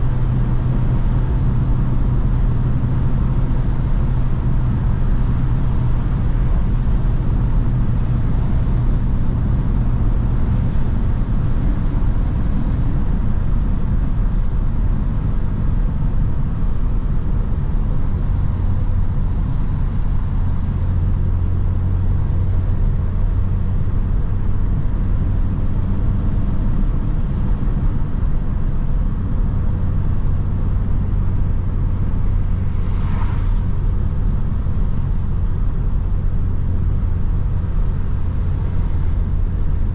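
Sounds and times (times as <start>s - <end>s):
car engine and exhaust droning: 0.0s - 39.9s
tyre and road noise: 26.6s - 39.9s.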